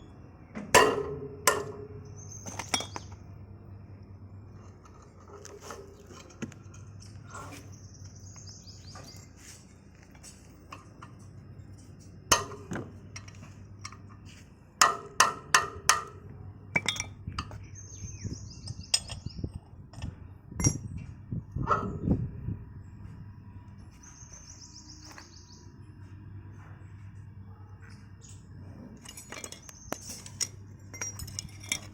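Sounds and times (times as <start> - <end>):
metal tools clinking and knocking: 0.8 - 3.2, 4.6 - 7.5, 10.0 - 16.1, 16.7 - 17.6, 18.7 - 22.0, 28.0 - 31.9.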